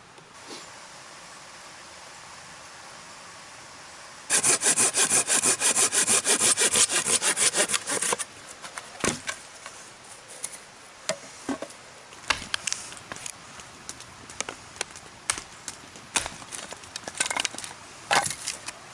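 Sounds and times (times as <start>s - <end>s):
hand saw cutting wood: 4.3s - 8.3s.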